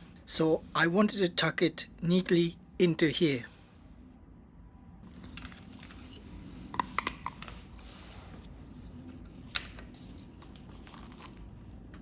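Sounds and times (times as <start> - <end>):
low steady background: 0.0 - 12.0.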